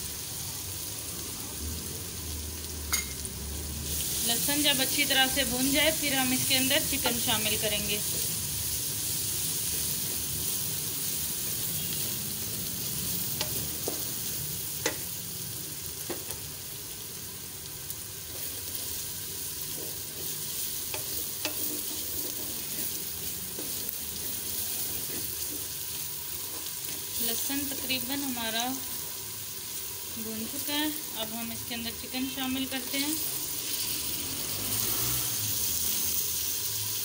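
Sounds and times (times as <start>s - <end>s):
onions sizzling in hot oil: 0.0s - 37.0s
wooden spatula scraping pot: 19.6s - 27.2s.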